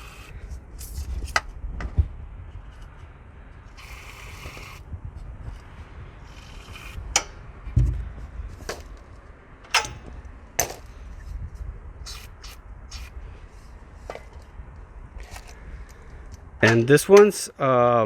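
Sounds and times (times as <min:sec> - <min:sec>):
steady low rumble: 0:00.0 - 0:17.1
socket wrench metal clicks: 0:09.7 - 0:10.1.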